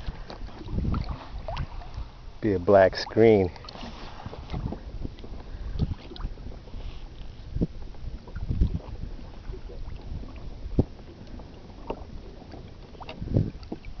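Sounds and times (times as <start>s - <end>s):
water lapping against kayak hull: 0.0s - 14.0s
wind buffeting microphone: 0.0s - 14.0s
dull low thumps: 7.4s - 12.2s.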